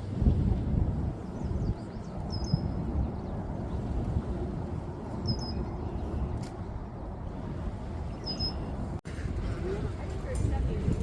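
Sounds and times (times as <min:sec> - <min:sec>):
wind buffeting microphone: 0:00.0 - 0:11.0
bird chirping: 0:01.4 - 0:03.4, 0:05.2 - 0:06.2, 0:08.1 - 0:08.8.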